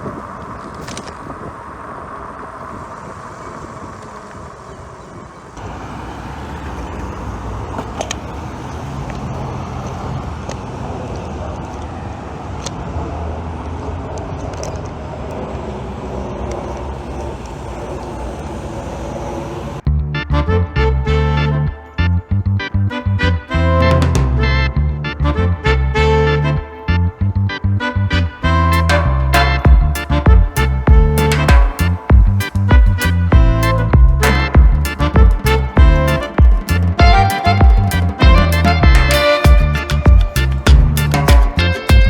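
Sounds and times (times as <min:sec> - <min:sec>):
cars passing: 0:00.0 - 0:42.0
road traffic: 0:00.0 - 0:42.0
wind noise: 0:00.0 - 0:42.0
deep loud rumble: 0:19.7 - 0:42.0.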